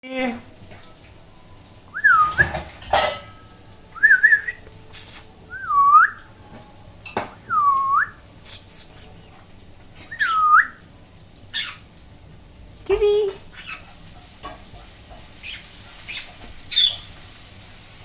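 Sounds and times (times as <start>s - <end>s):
swooping whistled notes: 1.9s - 2.6s, 3.9s - 6.3s
parrot high chirps: 4.0s - 6.2s, 7.9s - 9.4s, 10.0s - 10.8s, 11.5s - 11.9s, 13.5s - 13.9s, 15.4s - 17.2s.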